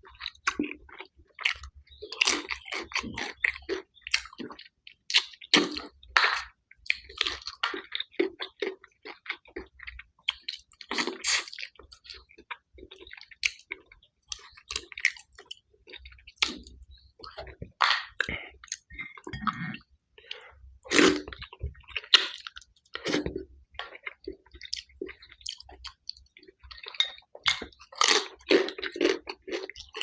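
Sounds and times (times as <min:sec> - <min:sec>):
wet chewing and smacking: 0:00.0 - 0:30.0
crunching while eating: 0:20.3 - 0:30.0.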